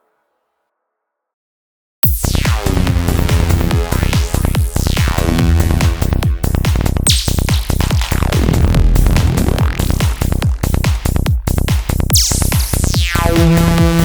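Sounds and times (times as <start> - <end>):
kick drum and bass: 2.0 - 14.0
synth sweeps: 8.1 - 10.5.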